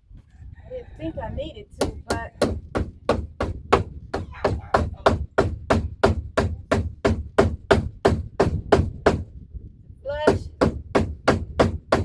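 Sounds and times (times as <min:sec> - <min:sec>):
mallet striking wood: 0:10.3 - 0:12.0.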